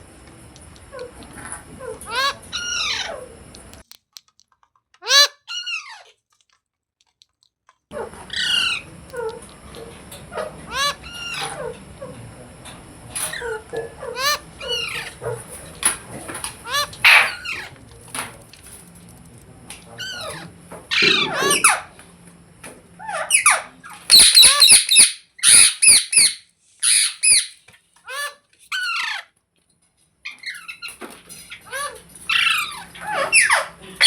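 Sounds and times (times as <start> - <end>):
parakeet chirping and screeching: 0.6 - 3.8, 5.0 - 6.1, 7.9 - 12.0, 13.2 - 15.8, 16.5 - 17.8, 20.0 - 22.0, 23.0 - 29.3, 30.2 - 33.8.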